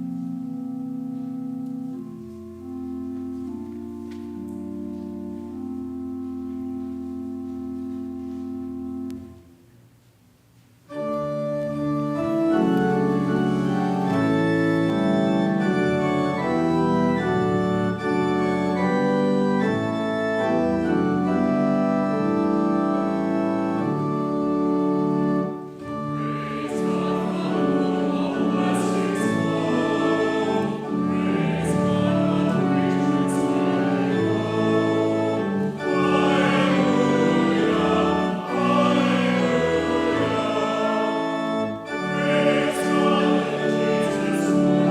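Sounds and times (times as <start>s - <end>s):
church organ chords: 0.0s - 9.8s, 10.9s - 44.9s
choir singing: 25.9s - 44.9s.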